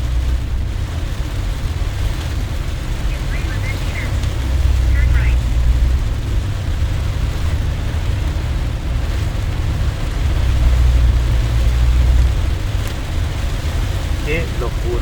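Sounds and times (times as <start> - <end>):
deep low rumble: 0.0 - 14.2
heavy rain on a car: 0.0 - 15.0.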